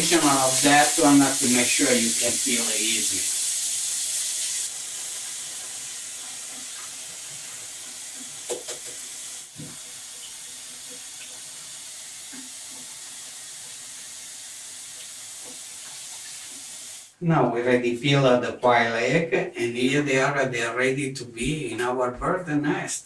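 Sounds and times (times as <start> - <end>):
tap running water: 0.0 - 17.2.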